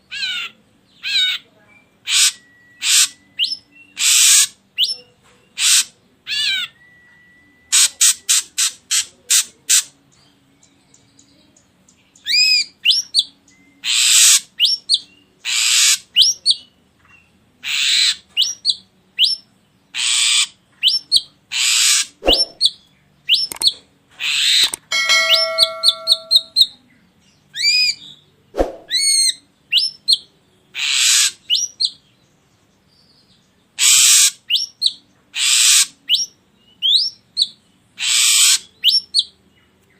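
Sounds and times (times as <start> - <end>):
bird rasping and whistling: 2.1 - 4.9, 20.0 - 26.7, 38.0 - 39.2
short clicks: 23.4 - 23.7.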